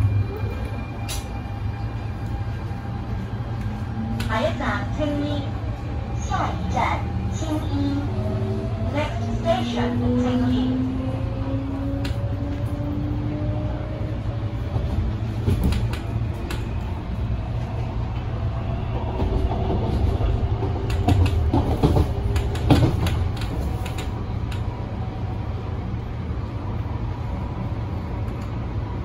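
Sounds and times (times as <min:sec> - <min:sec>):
train low rumble: 0:00.0 - 0:29.0.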